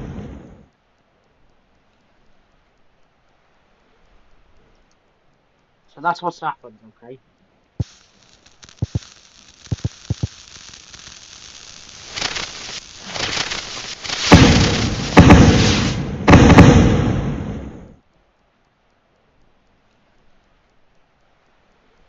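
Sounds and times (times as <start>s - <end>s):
fireworks bangs: 0.0s - 0.6s, 7.8s - 18.0s
fireworks fizzing hiss: 0.0s - 0.7s, 7.8s - 17.9s
fireworks crackling: 7.8s - 17.9s.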